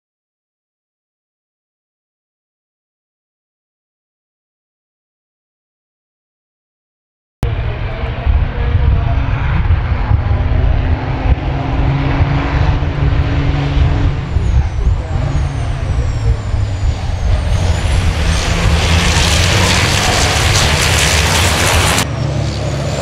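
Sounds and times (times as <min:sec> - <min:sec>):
racing truck engines rumbling: 0:07.4 - 0:23.0
high falling whistles: 0:13.6 - 0:21.5.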